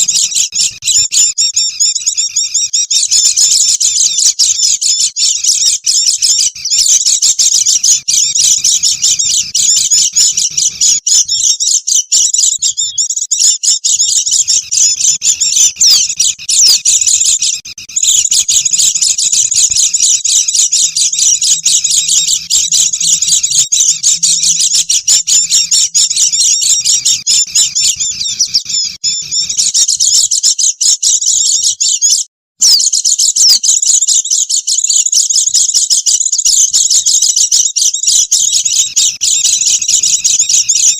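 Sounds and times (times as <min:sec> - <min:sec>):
flock of birds chattering: 0:00.0 - 0:40.9.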